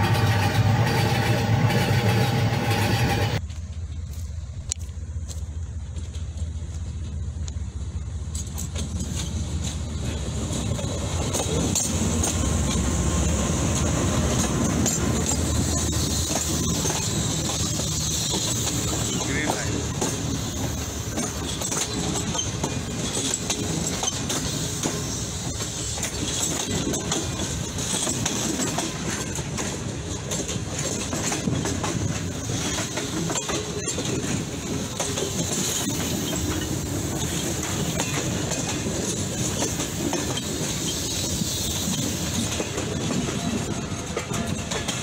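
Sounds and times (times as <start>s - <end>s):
clickety-clack over rail joints: 0.0s - 45.0s
train wheels rumbling on rails: 0.0s - 45.0s.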